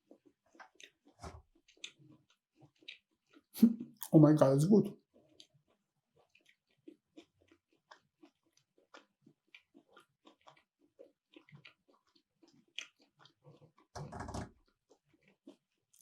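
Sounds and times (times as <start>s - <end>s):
close chewing with mouth clicks: 0.0s - 4.2s, 5.0s - 16.0s.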